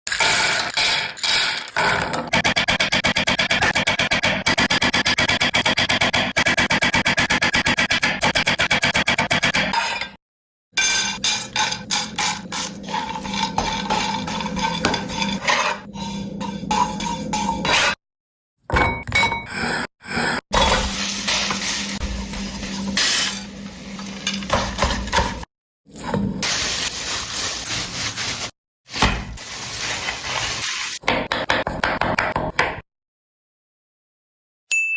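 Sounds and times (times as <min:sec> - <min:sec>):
utensils scraping pots and pans: 0:10.8 - 0:18.0, 0:19.0 - 0:26.2.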